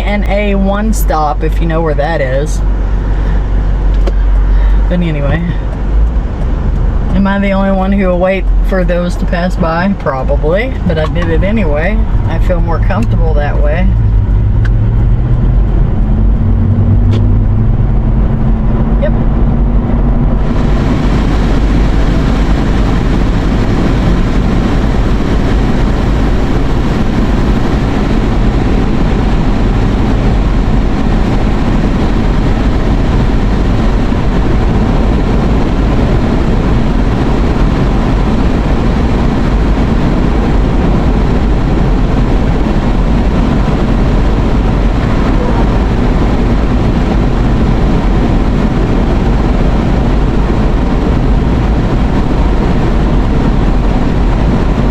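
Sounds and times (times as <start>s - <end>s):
low rumble: 0.0s - 54.9s
road and wind noise in car: 0.0s - 54.9s.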